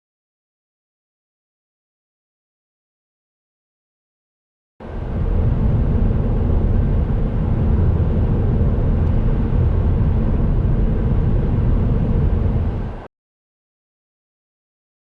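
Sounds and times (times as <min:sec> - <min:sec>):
car engine drone: 0:04.8 - 0:13.1
tyre and road noise: 0:04.8 - 0:13.1.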